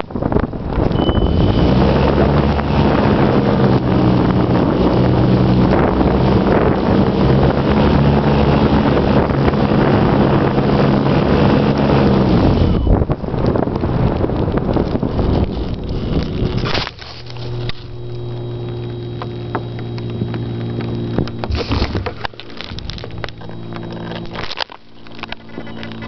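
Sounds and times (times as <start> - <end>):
wind rushing over camera: 0.0 - 26.0
small electric motor hum: 14.2 - 26.0.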